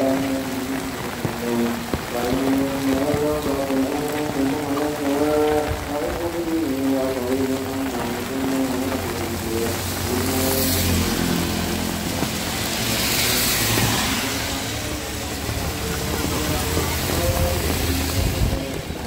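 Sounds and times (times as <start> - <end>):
heavy rain: 0.0 - 19.0
vehicles passing on wet road: 0.0 - 19.0.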